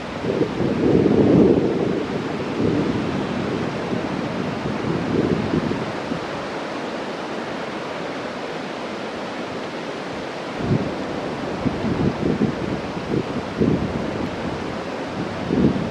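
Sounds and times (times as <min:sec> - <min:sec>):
wind buffeting microphone: 0:00.0 - 0:06.6, 0:10.0 - 0:15.9.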